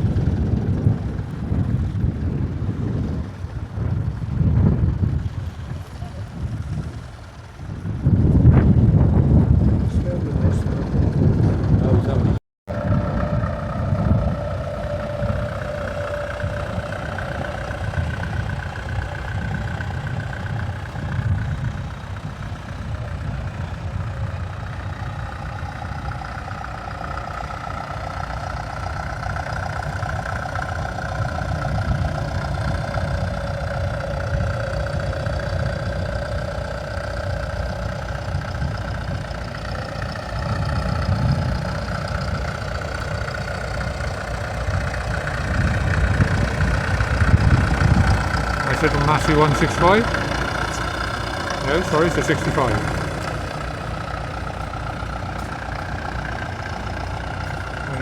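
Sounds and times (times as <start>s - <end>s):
tractor engine running: 0.0s - 58.0s
faint wavering whine: 12.7s - 21.0s.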